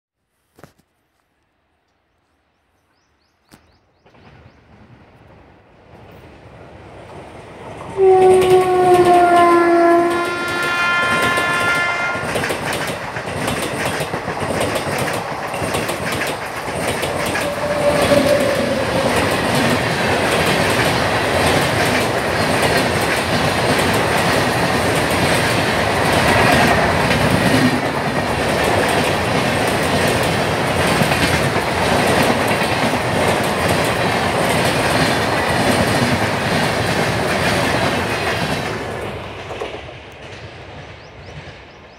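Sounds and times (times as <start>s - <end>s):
train wheels rumbling and clacking: 4.0s - 41.9s
train horn: 7.9s - 12.5s, 17.3s - 19.6s.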